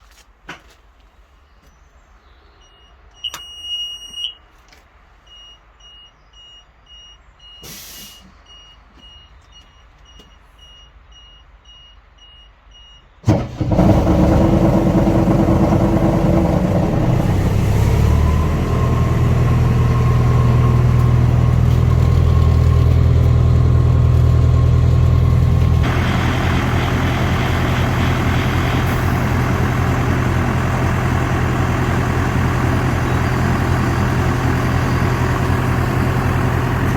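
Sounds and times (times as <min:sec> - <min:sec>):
electronic warning beeps: 0:02.6 - 0:04.4, 0:05.3 - 0:07.7, 0:08.4 - 0:13.2
diesel engine starting and running: 0:13.2 - 0:36.9.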